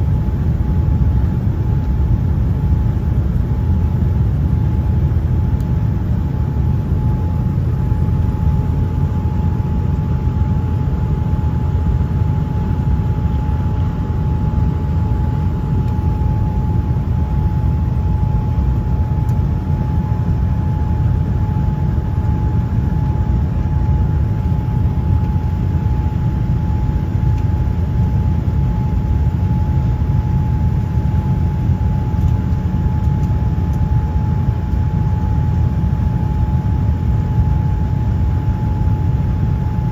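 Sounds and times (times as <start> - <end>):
engine and airflow rumble: 0.0 - 39.9.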